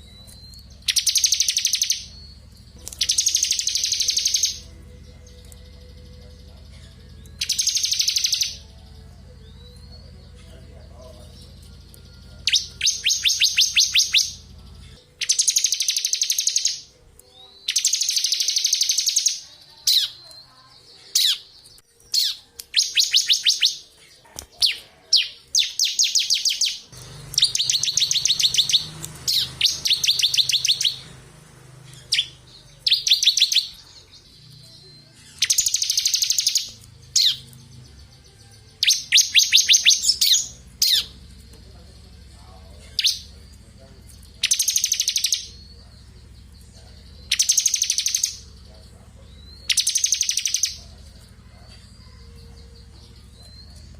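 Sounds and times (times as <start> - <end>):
bird rattling trills: 0.0 - 6.1, 7.4 - 8.6, 25.5 - 31.2.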